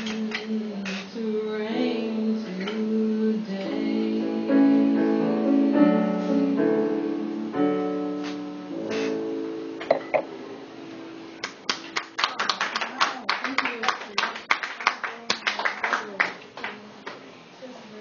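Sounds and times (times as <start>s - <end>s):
piano playing slow chords: 3.4s - 12.2s.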